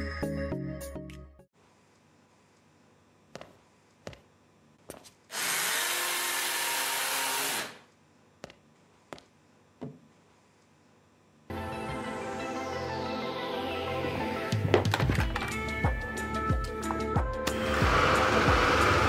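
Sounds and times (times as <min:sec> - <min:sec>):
vacuum cleaner motor running: 0:17.5 - 0:19.0.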